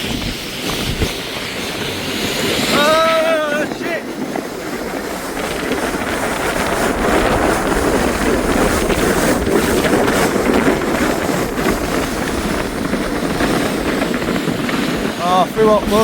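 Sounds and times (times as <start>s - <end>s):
kayak hull scraping on snow: 0.0s - 16.0s
wind buffeting microphone: 0.0s - 16.0s.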